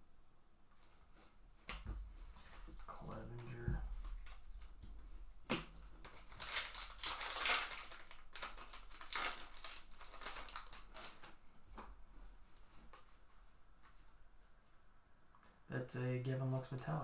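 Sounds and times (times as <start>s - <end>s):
card pack wrapper crinkling: 6.0s - 11.4s.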